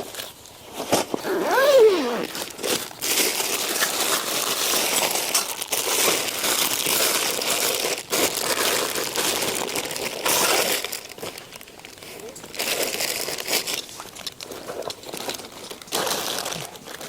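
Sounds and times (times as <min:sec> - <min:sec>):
fabric and packaging rustling: 0:00.0 - 0:17.0.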